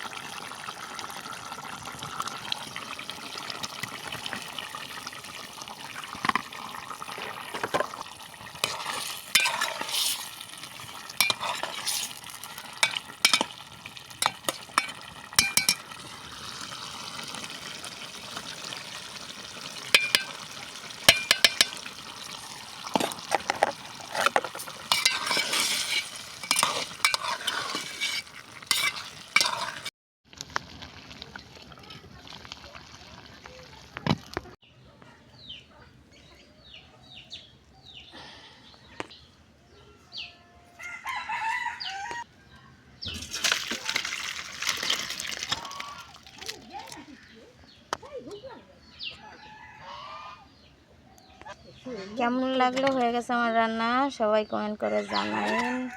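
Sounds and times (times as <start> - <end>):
food sizzling in a frying pan: 0.0 - 34.6, 43.1 - 46.9
spatula clinking and scraping pan: 8.6 - 16.1, 19.8 - 29.9.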